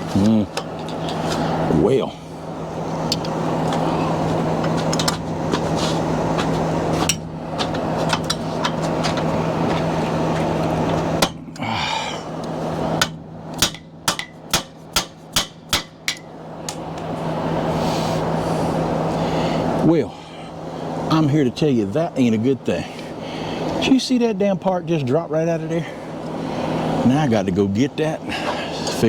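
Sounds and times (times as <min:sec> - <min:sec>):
steady background hum: 0:00.0 - 0:29.0
pliers hammering on metal pin: 0:13.0 - 0:16.8.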